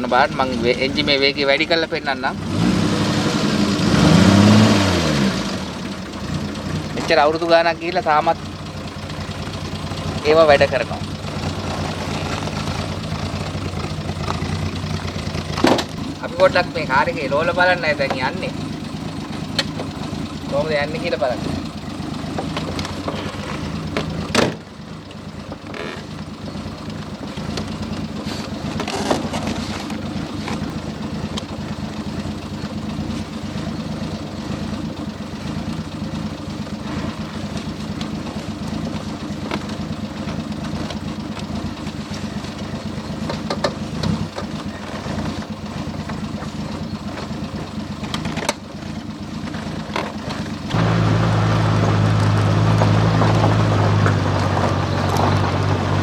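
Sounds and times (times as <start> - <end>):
car engine running: 0.0 - 56.0.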